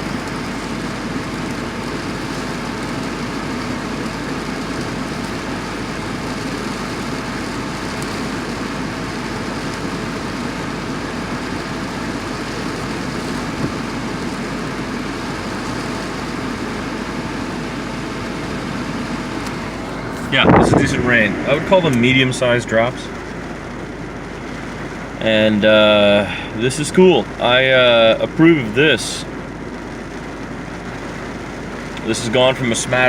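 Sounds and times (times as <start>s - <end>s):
steady rain falling: 0.0s - 20.4s
car engine idling: 0.0s - 33.0s.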